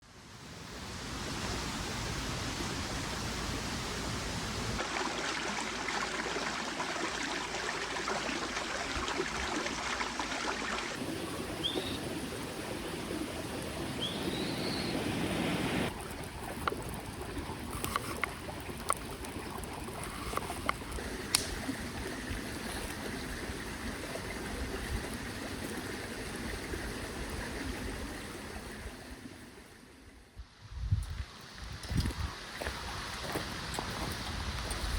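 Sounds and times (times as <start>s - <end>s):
stream running over rocks: 0.4s - 30.1s, 31.0s - 34.9s
bird chirping: 11.6s - 12.0s, 14.0s - 15.0s.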